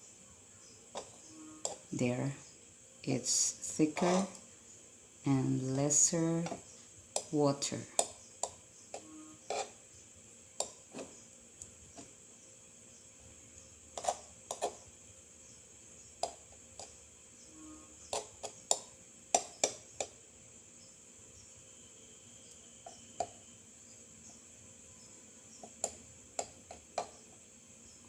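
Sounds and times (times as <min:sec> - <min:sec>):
utensil tapping on a dish: 0:16.2 - 0:16.9, 0:18.1 - 0:20.1, 0:25.6 - 0:27.2.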